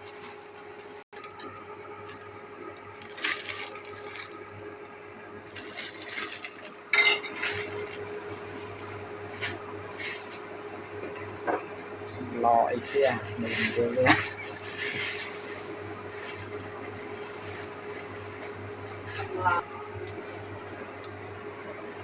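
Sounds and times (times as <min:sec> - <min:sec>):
faint steady hum: 0:00.0 - 0:22.0
dishes clinking and scraping: 0:06.9 - 0:07.9.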